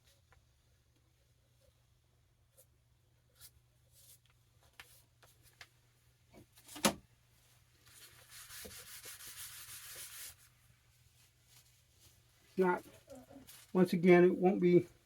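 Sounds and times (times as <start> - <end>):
rubbing against paper: 7.8 - 10.5.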